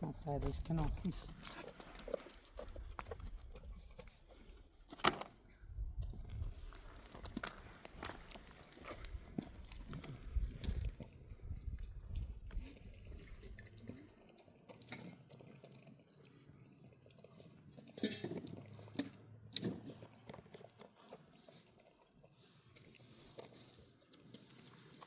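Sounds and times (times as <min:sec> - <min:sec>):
high insect trill: 0:00.0 - 0:25.0
footsteps on rough ground: 0:06.2 - 0:10.9.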